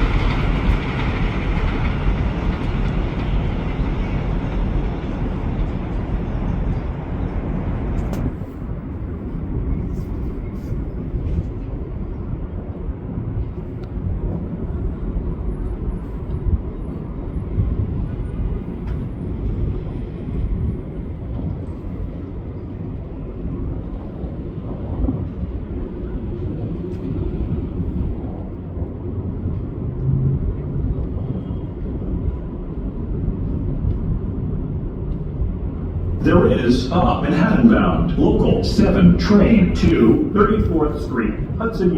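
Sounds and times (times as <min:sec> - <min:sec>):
train and street rumble: 0:00.0 - 0:41.9.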